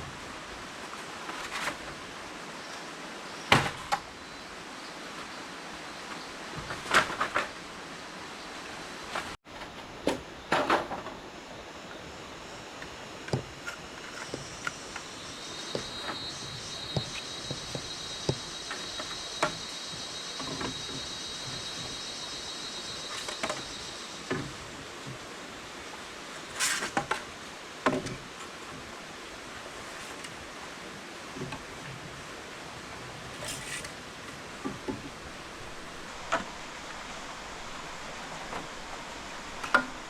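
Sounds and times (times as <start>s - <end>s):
insects buzzing: 9.1s - 27.2s, 32.8s - 40.0s
sharp knocks and clicks: 14.1s - 22.0s.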